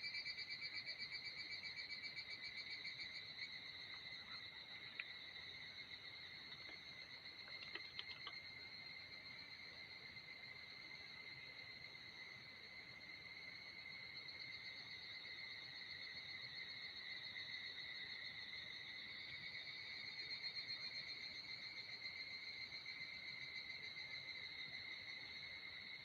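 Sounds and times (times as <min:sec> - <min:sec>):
insects calling: 0:00.6 - 0:12.3.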